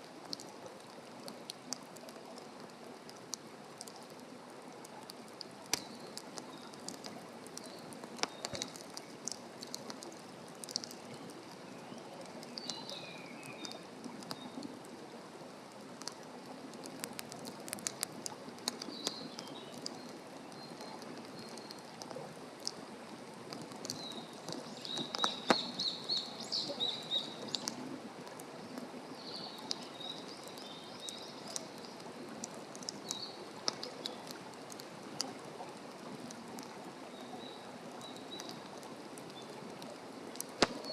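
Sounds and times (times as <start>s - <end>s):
wood fire crackling and popping: 0.0s - 15.0s, 15.6s - 36.8s, 38.0s - 40.9s
small birds chirping: 5.7s - 14.7s, 18.6s - 22.1s, 23.6s - 27.9s, 28.6s - 34.4s, 40.4s - 40.9s.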